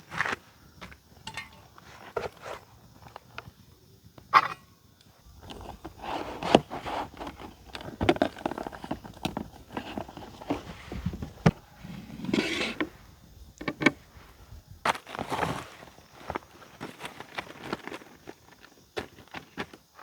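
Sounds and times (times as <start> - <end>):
camping gear knocking and clicking: 1.2 - 3.5, 4.4 - 14.1
rustling: 5.2 - 18.1.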